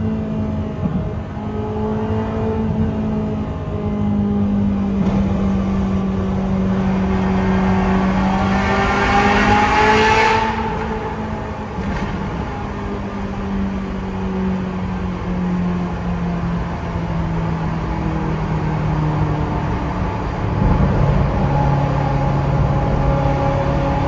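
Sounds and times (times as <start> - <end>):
car engine and exhaust: 0.0 - 24.0.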